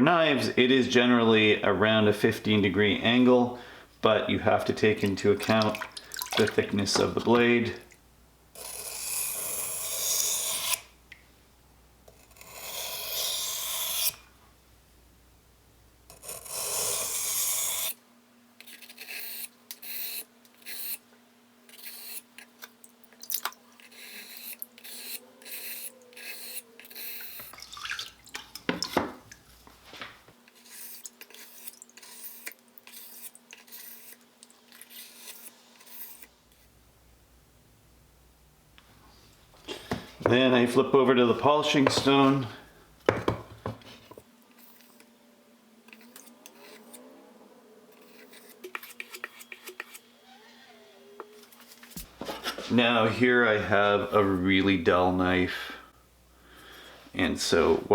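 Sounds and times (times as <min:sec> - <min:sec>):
knife sharpening on a whetstone: 0:18.7 - 0:21.0, 0:21.7 - 0:22.3, 0:23.8 - 0:27.5, 0:48.0 - 0:50.0.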